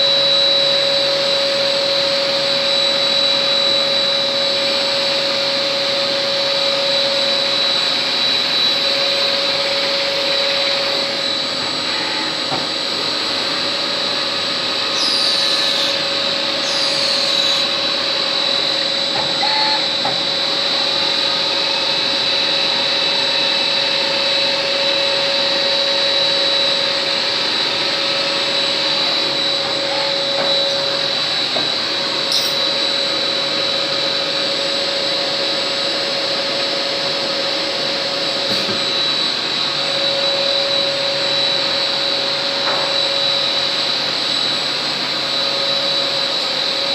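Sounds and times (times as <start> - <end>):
lathe machine running with whine: 0.0 - 46.9
falling whines: 14.7 - 46.9.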